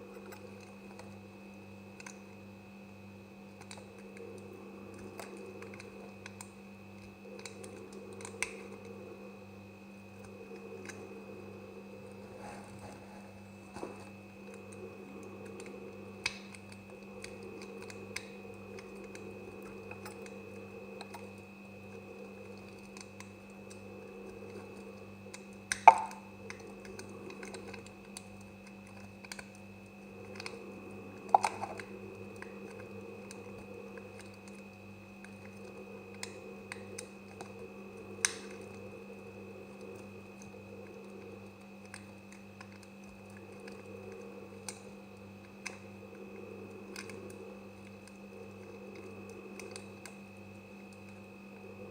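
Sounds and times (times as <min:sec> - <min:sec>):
electrical hum: 0:00.0 - 0:51.9
sharp snaps: 0:25.7 - 0:26.2.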